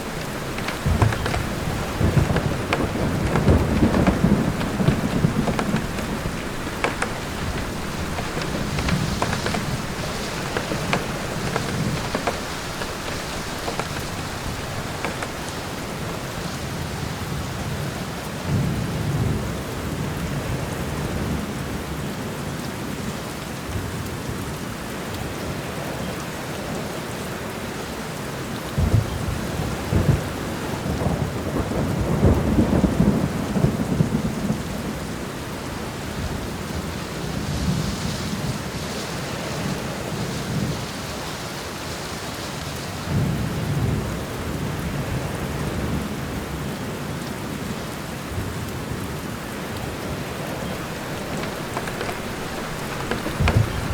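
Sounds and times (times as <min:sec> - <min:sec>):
thunder rumbling: 0:00.0 - 0:16.9, 0:50.6 - 0:53.9
steady rain falling: 0:00.0 - 0:53.9.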